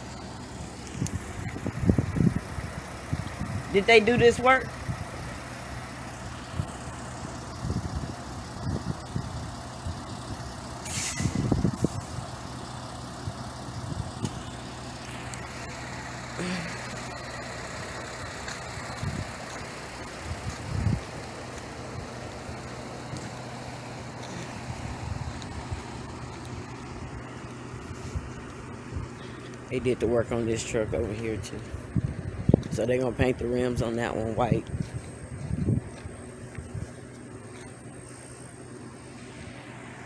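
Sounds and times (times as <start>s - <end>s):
diesel truck engine idling: 0.0s - 40.0s
air hiss: 10.8s - 11.9s.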